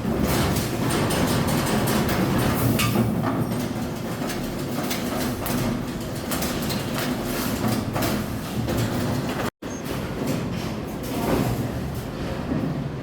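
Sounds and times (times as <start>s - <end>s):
machinery clatter and rumble: 0.0s - 13.0s.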